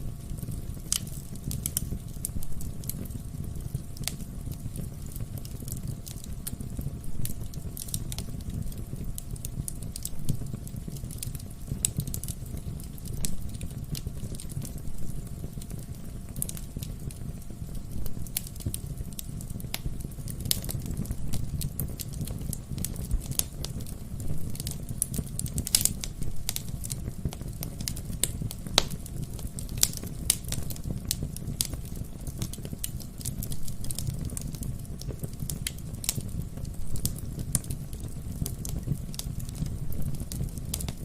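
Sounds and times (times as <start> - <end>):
fire crackling and popping: 0.0 - 41.0
low rumble of flames: 0.0 - 41.0.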